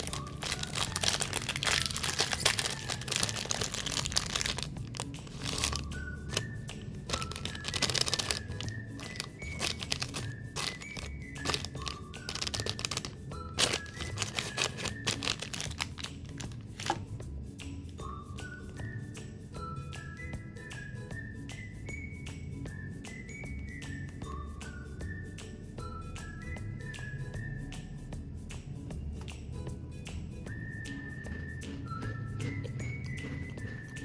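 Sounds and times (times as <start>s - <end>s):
wrapper crinkling and tearing: 0.0s - 6.5s, 7.1s - 17.0s.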